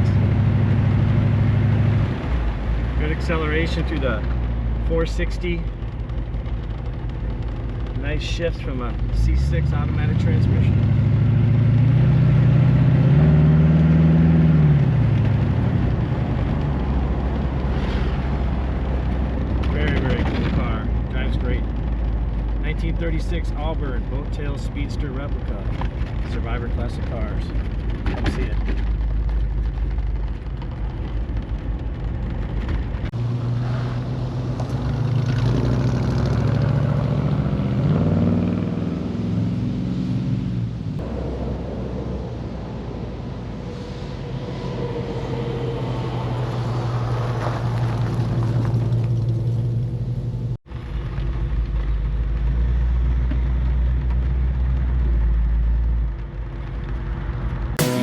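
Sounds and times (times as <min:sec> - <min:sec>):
car engine revving: 0:00.0 - 0:27.5, 0:32.0 - 0:50.5, 0:57.8 - 0:58.0.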